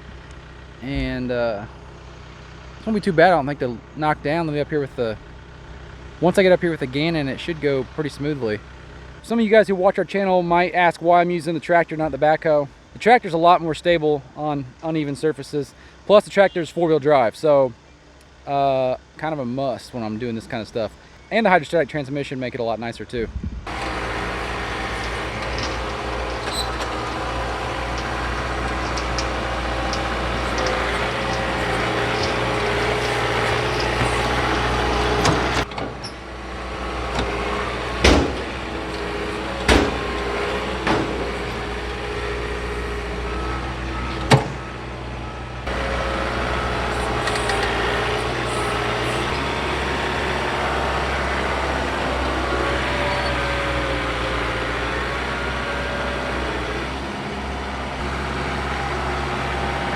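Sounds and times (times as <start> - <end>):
tractor diesel engine running: 0.0 - 22.3, 23.6 - 59.9.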